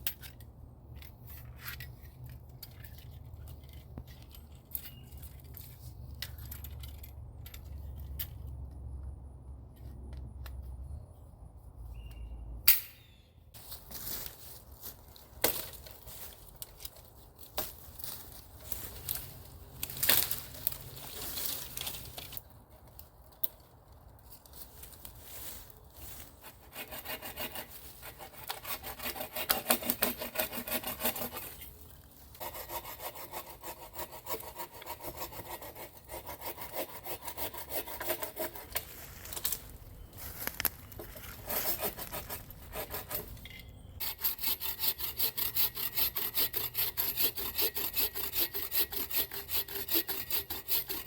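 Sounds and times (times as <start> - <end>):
hand saw cutting wood: 26.1 - 38.9, 41.2 - 43.4, 44.0 - 51.0.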